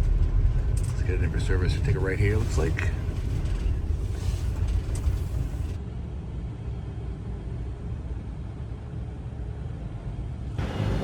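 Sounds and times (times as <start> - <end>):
road noise: 0.0 - 5.8, 10.6 - 11.0
vehicle engine rumble: 0.0 - 5.8.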